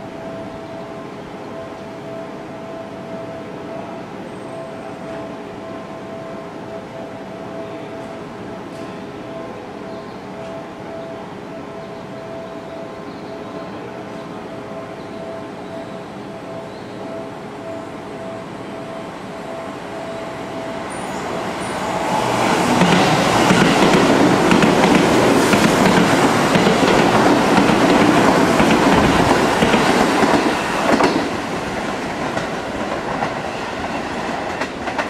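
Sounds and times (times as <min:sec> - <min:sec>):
train wheels rumbling on rails: 0:20.7 - 0:35.0.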